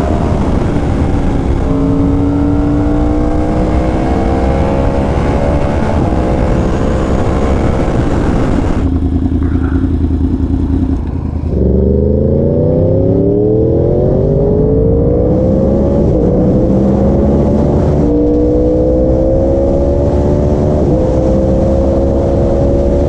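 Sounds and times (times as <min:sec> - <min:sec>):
wind rush: 0:00.0 - 0:10.2
motorcycle engine accelerating: 0:00.0 - 0:23.0.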